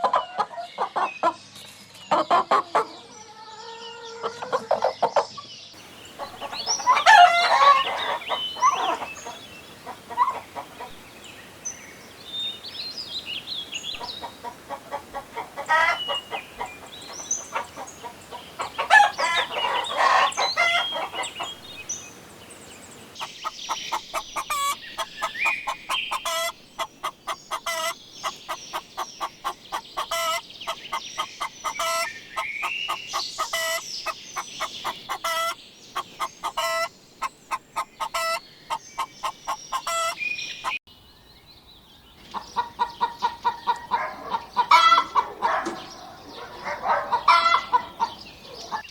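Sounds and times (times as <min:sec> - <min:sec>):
chickens clucking: 0:00.0 - 0:01.4, 0:02.0 - 0:40.8, 0:42.2 - 0:48.9
rooster crowing: 0:06.1 - 0:11.0, 0:14.0 - 0:21.4, 0:43.8 - 0:48.8.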